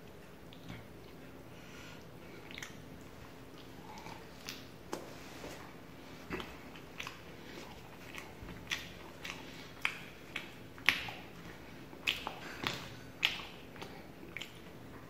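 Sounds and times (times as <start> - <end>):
person chewing: 2.0 - 15.0
mouth clicks and smacks: 2.4 - 2.9, 8.1 - 11.4, 12.0 - 14.7.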